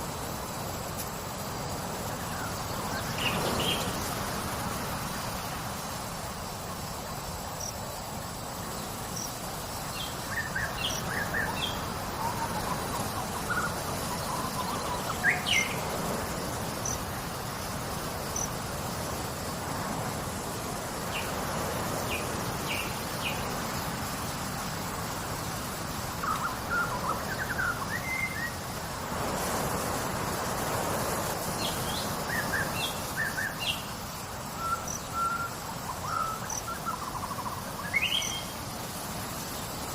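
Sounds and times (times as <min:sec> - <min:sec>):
high insect drone: 0:00.0 - 0:39.9
small birds chirping: 0:07.5 - 0:19.5, 0:31.5 - 0:39.8.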